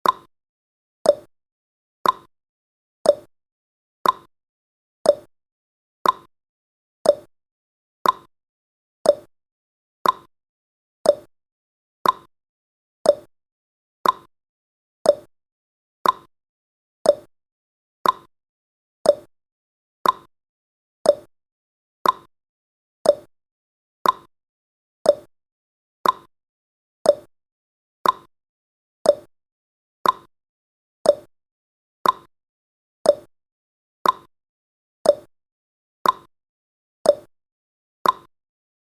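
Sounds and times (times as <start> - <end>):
countdown timer ticking: 3.1 - 3.3, 5.1 - 5.3, 7.1 - 7.3, 9.1 - 9.3, 11.1 - 11.3, 13.1 - 13.3, 15.1 - 15.3, 17.1 - 17.3, 19.1 - 19.3, 21.1 - 21.3, 23.0 - 23.3, 24.0 - 24.3, 25.1 - 25.3, 27.1 - 27.3, 28.0 - 28.3, 29.1 - 29.3, 30.0 - 30.3, 31.1 - 31.3, 32.0 - 32.3, 33.1 - 33.3, 34.0 - 34.3, 35.1 - 35.3, 36.0 - 36.3, 37.1 - 37.3, 38.0 - 38.3.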